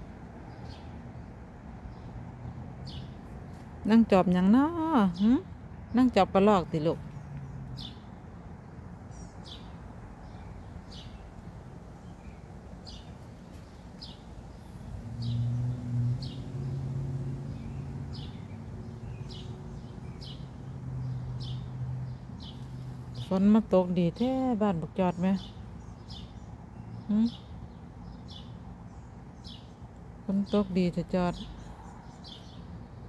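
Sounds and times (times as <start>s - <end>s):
bird chirping: 9.1s - 11.3s, 12.0s - 33.0s.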